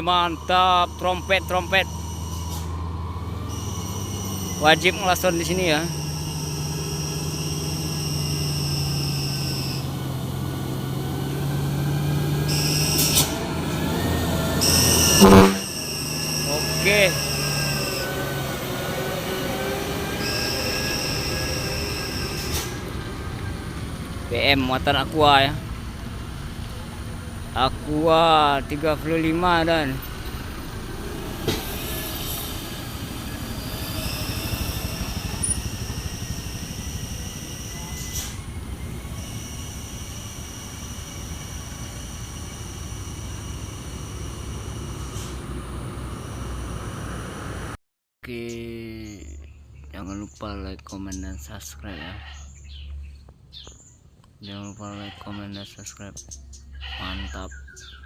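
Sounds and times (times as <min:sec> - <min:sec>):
high whine: 0:00.0 - 0:11.8, 0:13.9 - 0:47.8
truck diesel engine labouring: 0:00.0 - 0:47.8.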